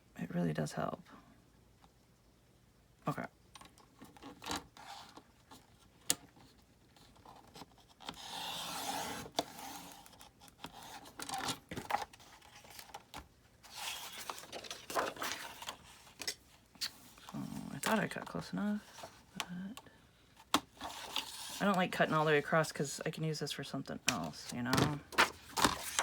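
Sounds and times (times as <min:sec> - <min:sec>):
paper rustling: 0:06.4 - 0:19.4, 0:24.1 - 0:26.0.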